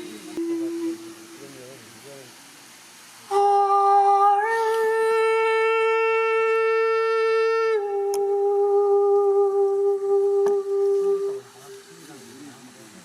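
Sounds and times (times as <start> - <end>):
person singing long overtone note: 0.0 - 1.9, 3.3 - 11.7
faint clicks: 8.0 - 8.4, 10.4 - 11.0.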